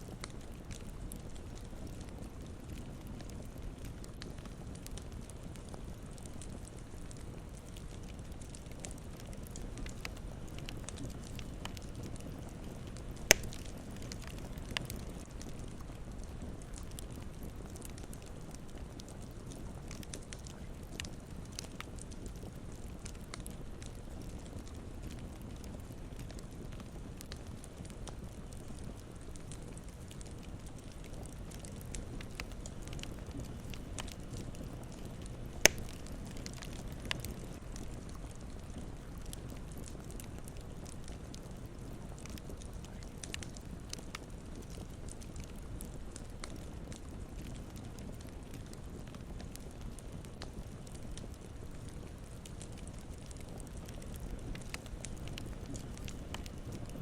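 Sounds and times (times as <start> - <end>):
campfire crackling: 0.0 - 57.0
loud fire pop: 13.3 - 13.6, 35.6 - 36.0
loud pop from fire: 13.3 - 14.2, 35.6 - 36.4.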